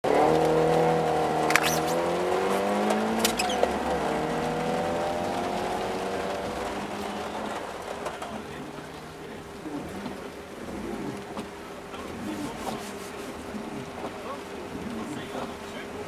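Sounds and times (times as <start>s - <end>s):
car engine revving: 0.0s - 16.0s
sharp clicks: 1.5s - 2.0s, 3.2s - 3.9s.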